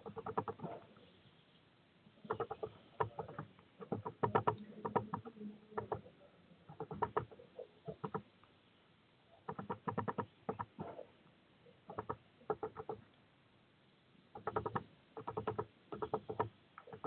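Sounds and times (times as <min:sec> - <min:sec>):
bird pecking and scratching on feeder: 0:00.0 - 0:01.0, 0:02.2 - 0:08.3, 0:09.4 - 0:11.0, 0:11.9 - 0:13.1, 0:14.4 - 0:17.0.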